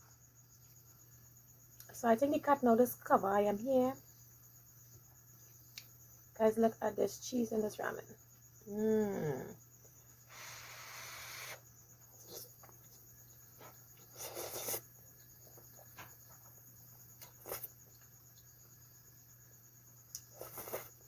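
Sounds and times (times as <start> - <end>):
person eating noodles: 14.1 - 14.9, 20.2 - 21.0.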